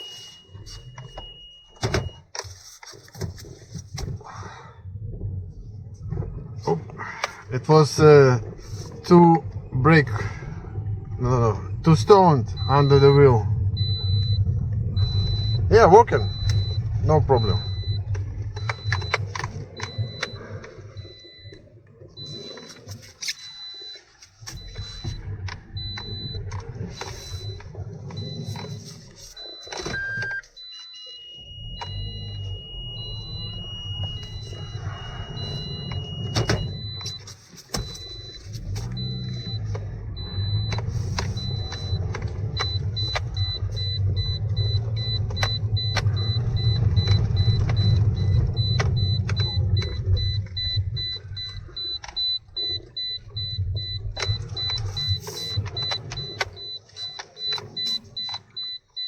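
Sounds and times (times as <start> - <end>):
high electronic beeps: 0.0 - 2.3, 11.8 - 21.6, 22.2 - 59.0
car engine running: 5.4 - 30.7, 31.4 - 59.0
steady high tone: 31.0 - 37.3.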